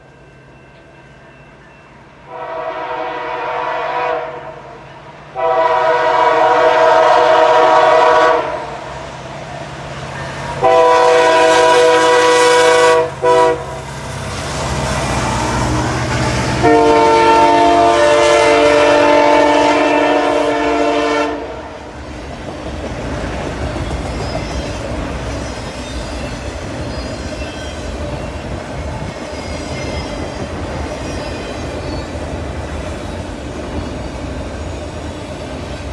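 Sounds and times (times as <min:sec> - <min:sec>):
locomotive air horn blasts: 0:02.3 - 0:04.8, 0:05.4 - 0:08.9, 0:10.6 - 0:13.8, 0:16.4 - 0:21.9
locomotive engine: 0:08.6 - 0:35.9.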